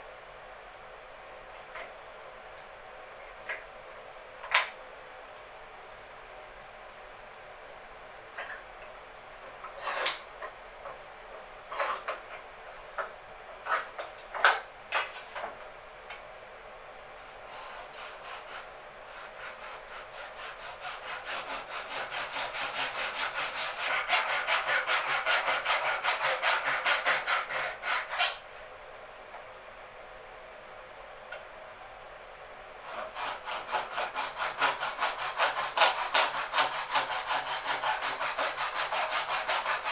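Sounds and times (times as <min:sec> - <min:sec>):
hand saw strokes: 0:17.5 - 0:28.4, 0:32.8 - 0:39.9.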